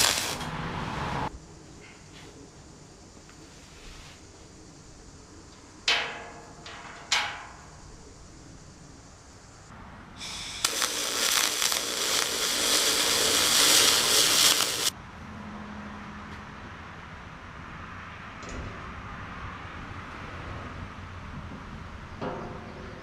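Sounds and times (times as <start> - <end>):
harsh hissing crackle: 0.0 - 6.1, 6.9 - 15.0
metal clanks ringing: 5.9 - 7.8.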